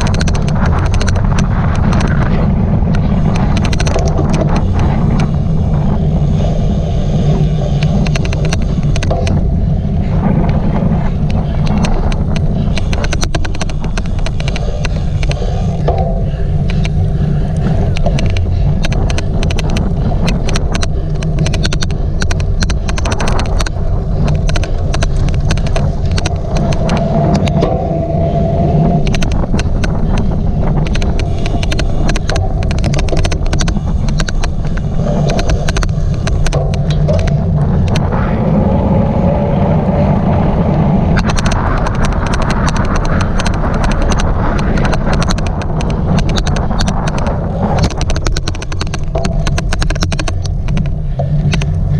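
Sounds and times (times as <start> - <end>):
bike low rumble: 0.0 - 51.9
sharp irregular clicks: 0.0 - 51.9.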